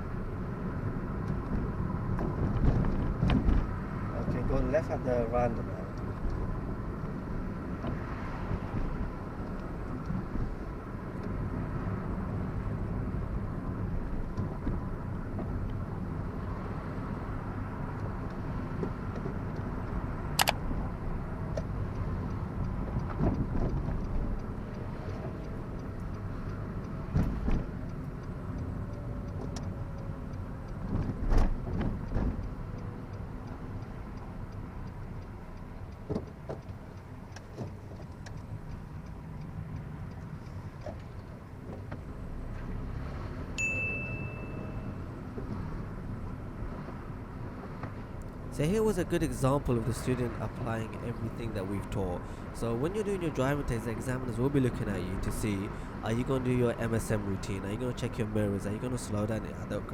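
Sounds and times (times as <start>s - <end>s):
car engine and road noise: 0.0s - 59.9s
sharp click: 20.4s - 20.7s.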